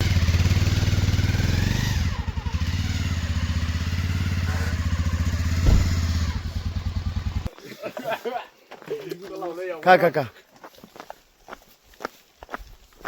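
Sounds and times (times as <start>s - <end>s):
motorcycle engine running: 0.0s - 7.5s
short thump: 5.6s - 6.5s.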